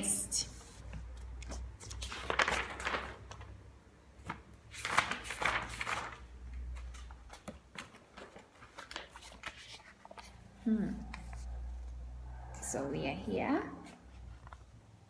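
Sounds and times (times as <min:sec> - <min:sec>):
book pages rustling: 0:00.4 - 0:12.1, 0:13.8 - 0:14.8.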